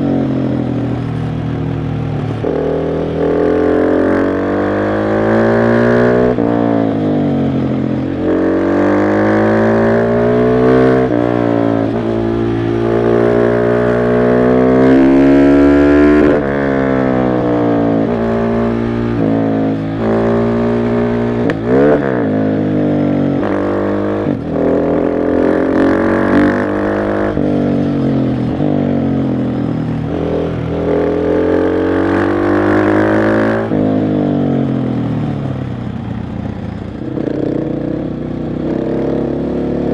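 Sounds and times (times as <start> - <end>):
motorcycle engine accelerating: 0.0 - 39.9
engine revving: 2.3 - 29.4, 30.0 - 34.3.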